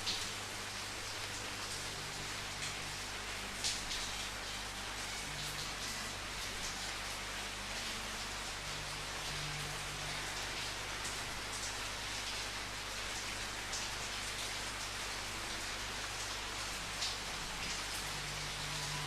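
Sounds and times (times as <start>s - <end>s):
louder raindrops: 0.0s - 19.0s
rain pattering: 0.0s - 19.0s.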